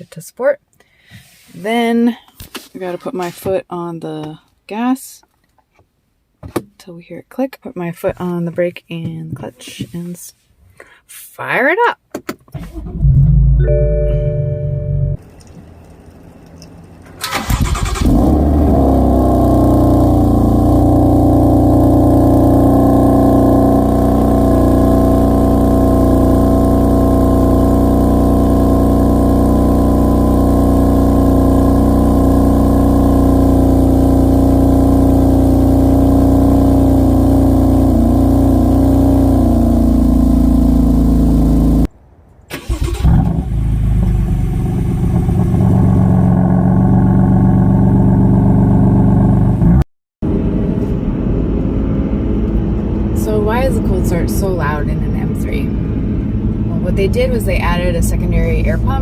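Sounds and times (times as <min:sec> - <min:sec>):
car engine idling: 0:15.3 - 0:41.9, 0:42.6 - 0:49.5.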